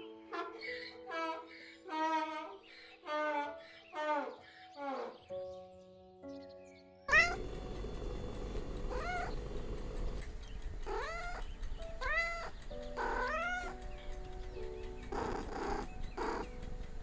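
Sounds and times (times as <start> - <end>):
soft background music: 0.0 - 17.0
cat meowing: 7.1 - 10.2, 10.8 - 13.8, 15.1 - 16.5
low hum: 7.1 - 17.0.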